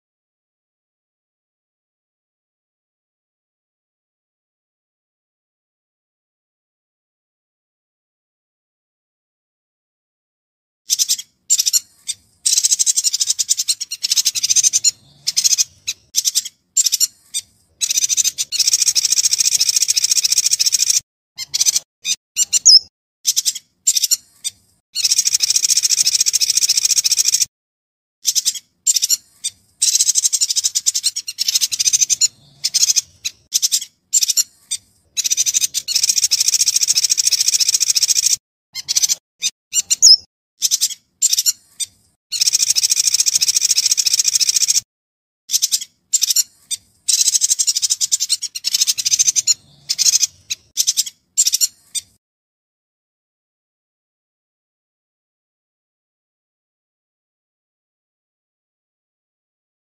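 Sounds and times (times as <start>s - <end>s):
bird chattering and twittering: 10.9s - 27.5s, 28.2s - 44.8s, 45.5s - 52.2s.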